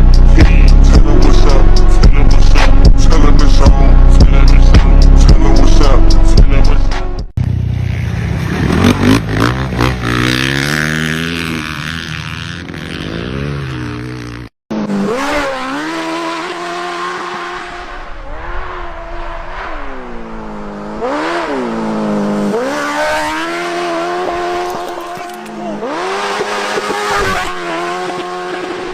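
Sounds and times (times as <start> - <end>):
off-road vehicle engines revving: 7.4 - 28.9.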